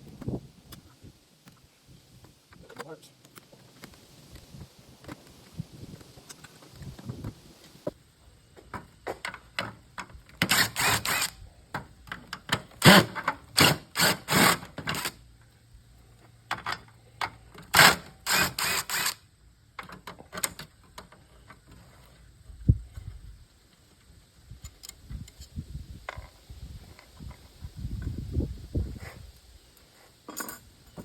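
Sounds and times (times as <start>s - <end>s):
hand tools clicking and clattering: 30.3s - 31.0s.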